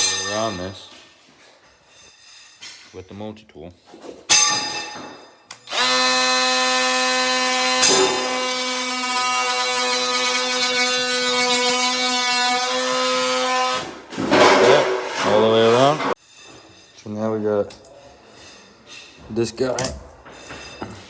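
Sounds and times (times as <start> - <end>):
oscillating multi-tool cutting: 5.7 - 13.9.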